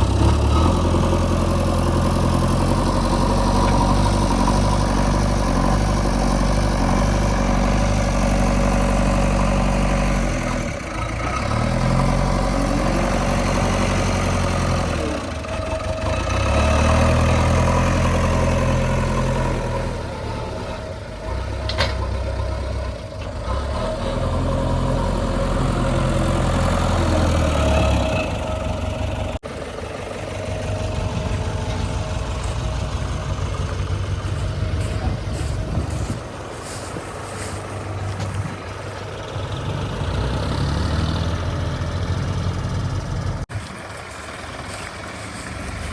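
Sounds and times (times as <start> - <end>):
diesel engine under load: 0.0 - 45.9.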